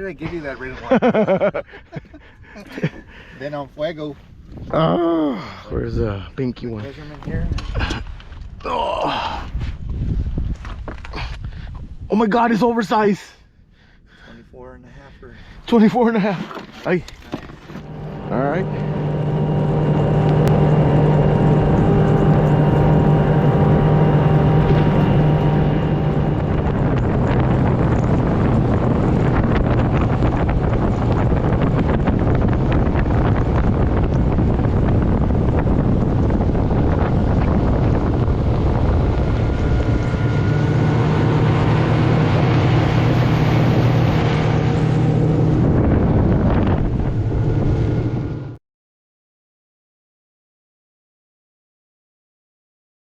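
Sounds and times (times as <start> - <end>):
wind: 0.0 - 48.6
water noise: 15.7 - 48.5
boat motor running: 15.8 - 48.6.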